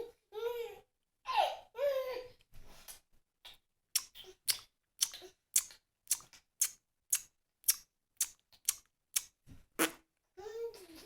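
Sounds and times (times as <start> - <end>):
baby's mouth clicks: 3.5 - 9.4.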